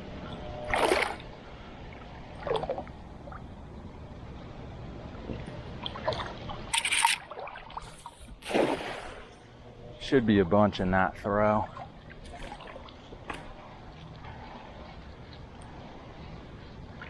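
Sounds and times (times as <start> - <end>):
water splashes from cast net: 8.4 - 9.3.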